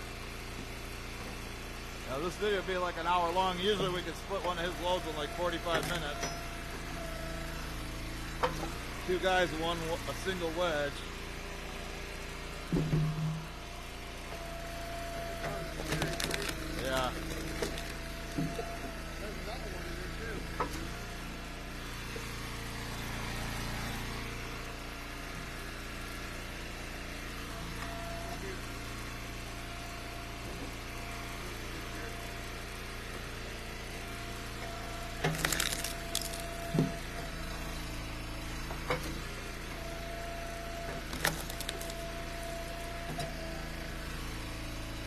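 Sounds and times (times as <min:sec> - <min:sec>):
wood splitter engine running: 0:00.0 - 0:45.0
firewood cracking and knocking: 0:15.8 - 0:18.6, 0:35.2 - 0:36.4, 0:41.0 - 0:42.0.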